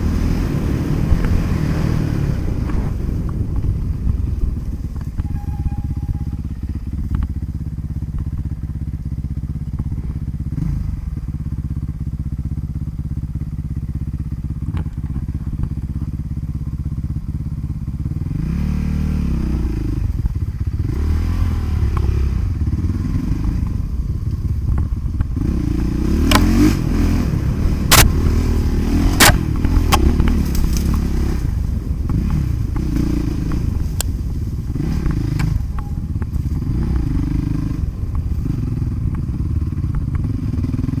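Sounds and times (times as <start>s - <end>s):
motocross bike engine revving: 25.4s - 34.0s, 34.6s - 41.0s.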